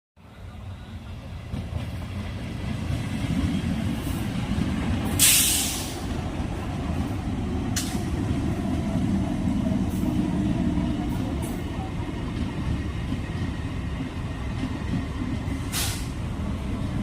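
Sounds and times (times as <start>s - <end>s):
train rumbling: 0.2s - 17.0s
air hiss: 5.2s - 6.1s, 15.6s - 16.2s.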